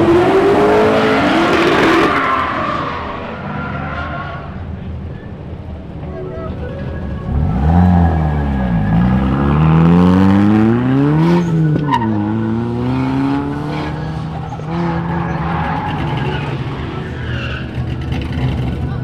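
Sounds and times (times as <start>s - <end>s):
car engine revving: 6.4s - 19.0s.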